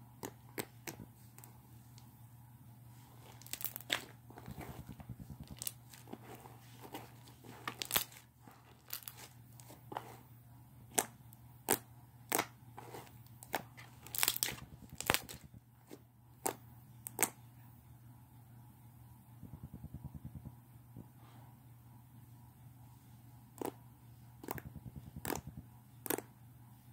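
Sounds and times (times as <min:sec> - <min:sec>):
slime squished by hand: 0:07.6 - 0:08.2, 0:13.4 - 0:15.4, 0:24.4 - 0:26.3.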